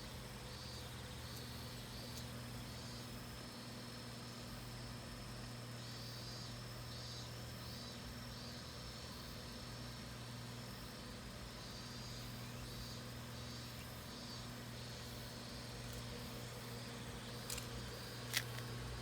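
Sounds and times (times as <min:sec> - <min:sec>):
cicadas calling: 0:00.0 - 0:03.2, 0:11.6 - 0:19.0.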